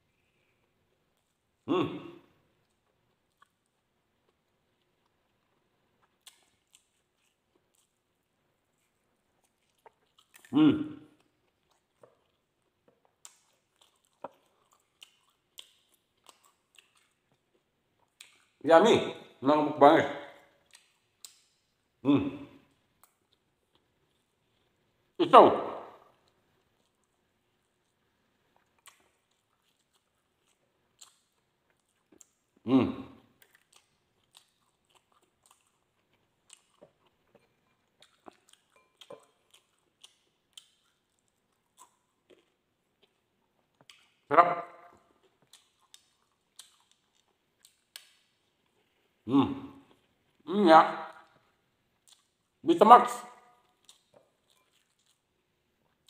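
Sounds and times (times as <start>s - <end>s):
person humming mmm: 1.7s - 2.2s
person chewing meat: 2.5s - 18.6s, 20.4s - 22.0s, 25.9s - 32.6s, 33.2s - 49.2s, 51.0s - 52.6s, 53.2s - 56.0s
wet mouth clicks and smacks: 20.7s - 21.6s, 45.5s - 47.0s, 47.6s - 48.4s.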